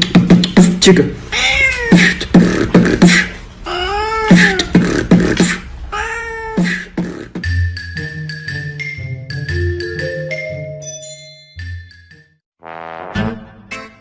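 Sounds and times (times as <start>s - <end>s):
beatboxed beat: 0.0s - 1.0s, 1.9s - 3.4s, 4.3s - 5.8s, 6.6s - 7.6s
cat meowing: 1.3s - 2.2s, 3.6s - 4.7s, 5.9s - 6.7s
marimba-like tune: 7.4s - 12.2s.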